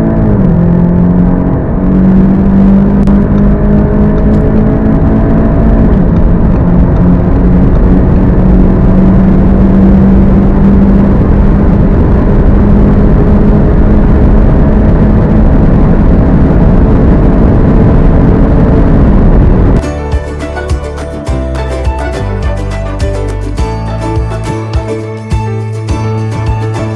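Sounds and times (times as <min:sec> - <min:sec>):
car engine pulling hard: 0:00.0 - 0:19.8
road and wind noise: 0:00.0 - 0:26.9.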